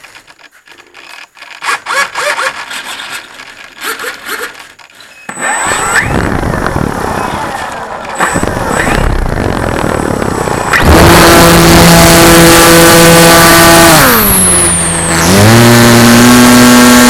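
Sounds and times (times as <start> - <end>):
aircraft engine starting and running: 5.3 - 17.0.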